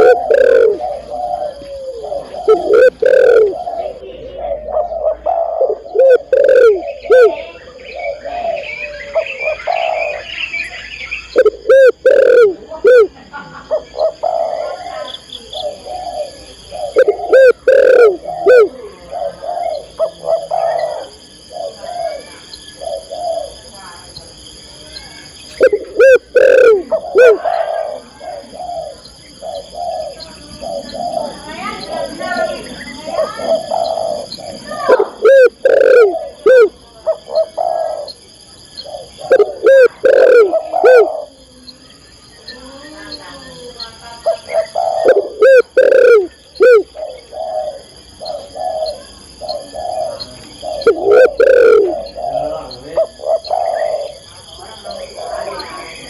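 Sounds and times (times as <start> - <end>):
dove cooing: 0.0 - 24.4, 25.2 - 56.0.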